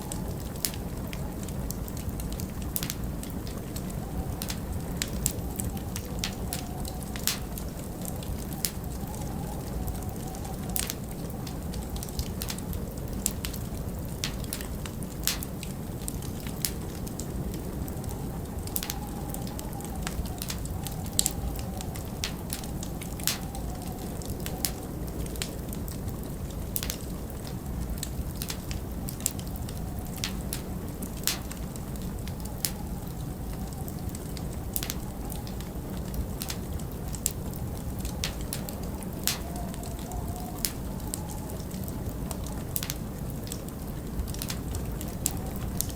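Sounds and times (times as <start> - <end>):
wind rushing and howling: 0.0 - 45.9
wood fire crackling: 0.0 - 45.9.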